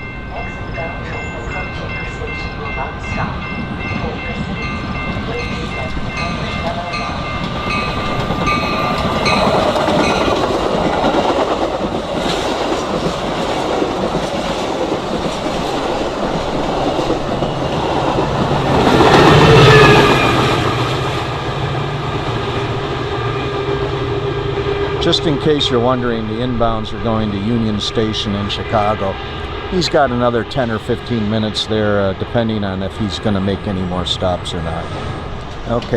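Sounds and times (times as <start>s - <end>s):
commuter train passing: 0.0s - 35.9s.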